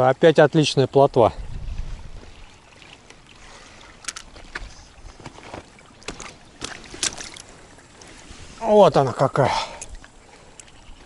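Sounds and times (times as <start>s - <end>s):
faint water and wind: 0.0s - 11.0s
sharp light clicks and knocks: 4.0s - 4.6s.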